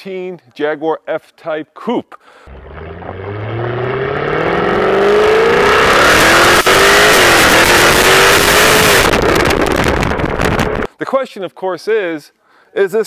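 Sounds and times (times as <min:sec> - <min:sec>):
car engine accelerating hard: 0:02.5 - 0:10.9.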